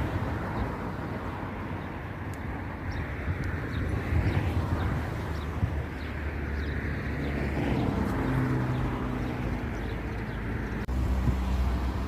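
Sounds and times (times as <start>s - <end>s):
motorway traffic: 0.0s - 12.0s
passing vehicle engine hum: 0.0s - 12.0s.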